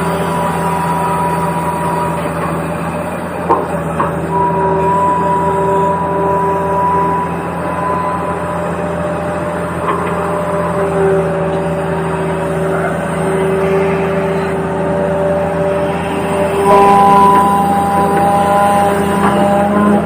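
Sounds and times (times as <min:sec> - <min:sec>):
low hum: 0:00.0 - 0:20.0
toy vehicle mechanical whine: 0:04.0 - 0:20.0.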